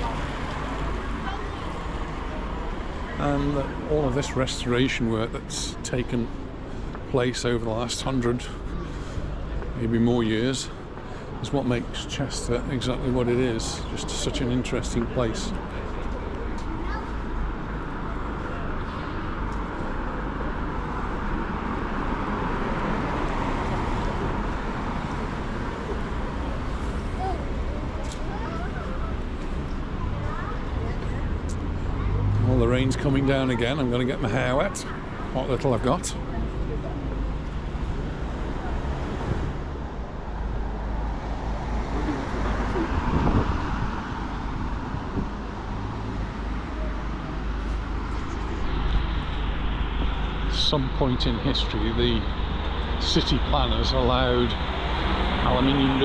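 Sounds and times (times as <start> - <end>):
street traffic: 0.0 - 56.0
wind rumble on microphone: 42.4 - 45.7.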